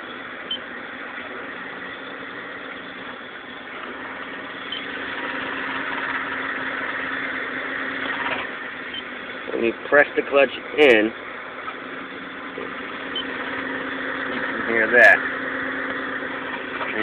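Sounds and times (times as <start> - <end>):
car engine idling: 0.0 - 17.0
clutch noise: 3.8 - 9.7.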